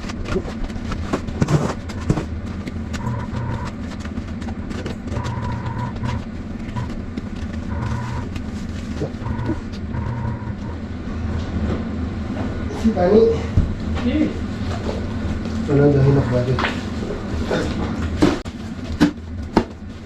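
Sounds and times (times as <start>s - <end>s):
scattered clicks and knocks: 0.0s - 10.8s
low mechanical hum: 0.0s - 20.0s
high whine: 1.4s - 13.0s.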